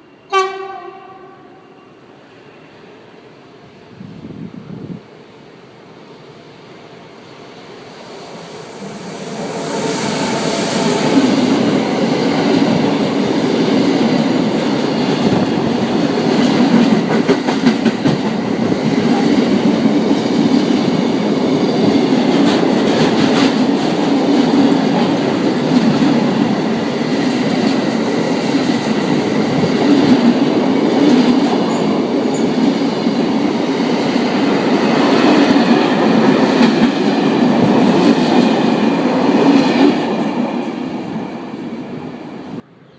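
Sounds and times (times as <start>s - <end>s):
train wheels clattering on track: 9.9s - 40.7s.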